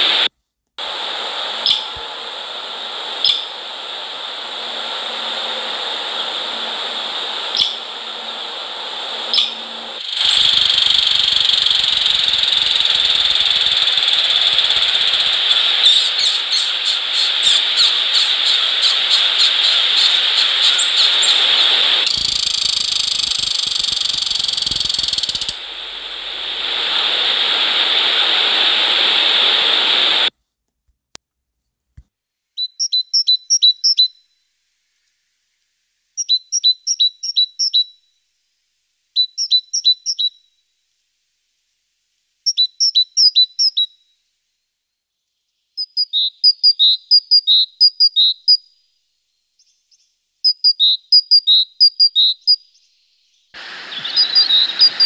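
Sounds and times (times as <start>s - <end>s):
loud steady noise: 0.0s - 30.3s, 53.6s - 55.0s
small bird chirping: 1.6s - 2.0s, 3.2s - 3.5s, 7.5s - 7.9s, 9.3s - 26.0s, 32.6s - 34.4s, 36.2s - 38.1s, 39.2s - 40.5s, 42.5s - 44.1s, 45.3s - 48.9s, 49.5s - 55.0s.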